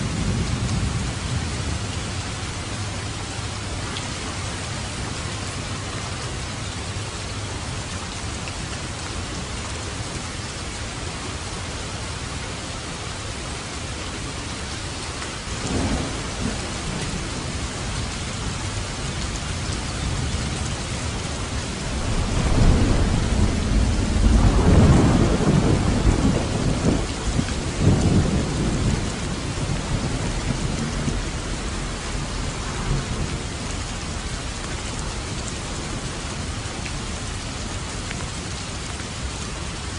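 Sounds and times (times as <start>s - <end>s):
steady rain: 0.0s - 39.9s
thunder rumbling: 15.6s - 37.6s.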